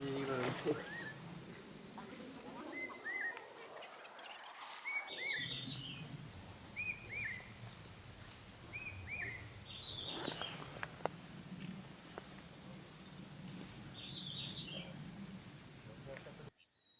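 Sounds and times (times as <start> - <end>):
bird chirping: 0.0 - 16.9
forest ambience: 0.0 - 16.9
bird twittering: 0.1 - 6.1, 11.3 - 16.5.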